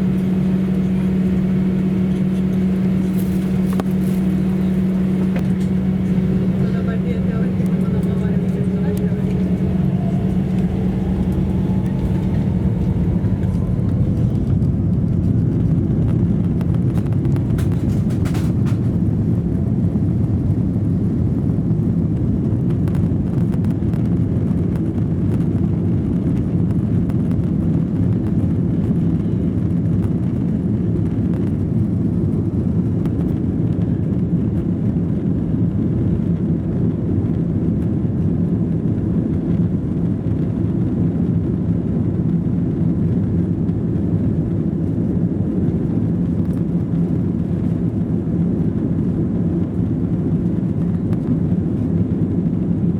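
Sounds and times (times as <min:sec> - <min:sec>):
rising whine: 0:00.0 - 0:17.8
jet engines rumbling in cabin: 0:00.0 - 0:52.9.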